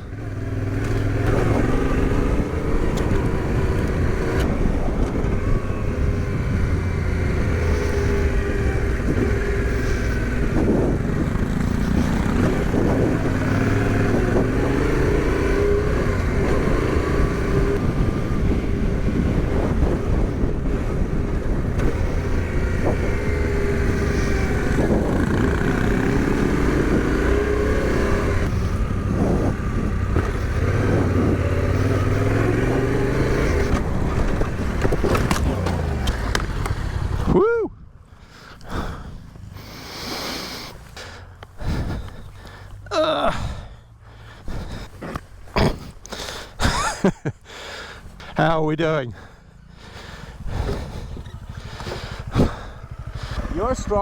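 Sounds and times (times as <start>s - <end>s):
motorcycle engine revving: 0.0s - 37.5s, 38.2s - 54.0s
knocks from rough ground: 33.7s - 36.8s.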